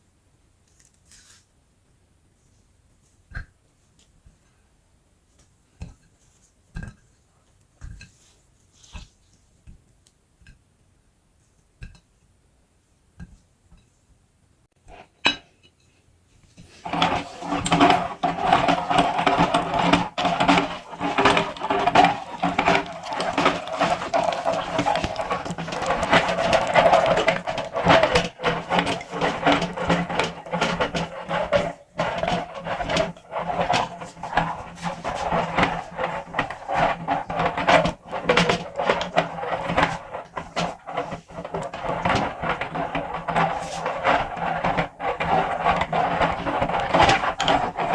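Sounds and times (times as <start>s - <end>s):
clicking and crackling of grinding: 16.6s - 47.9s
meat grinder motor running: 16.9s - 39.8s.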